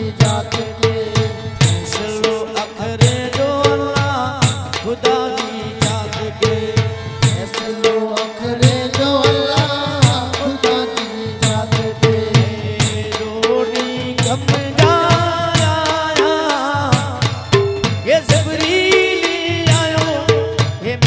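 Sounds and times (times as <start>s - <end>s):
hand drum beat: 3.0s - 7.9s, 8.6s - 21.0s.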